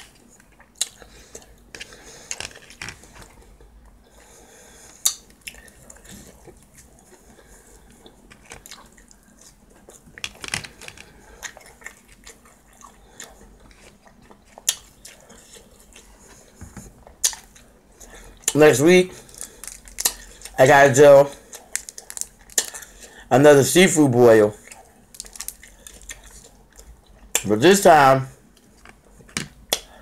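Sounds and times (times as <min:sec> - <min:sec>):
chewing and biting food: 0:00.0 - 0:18.6, 0:21.4 - 0:23.2, 0:24.6 - 0:27.5.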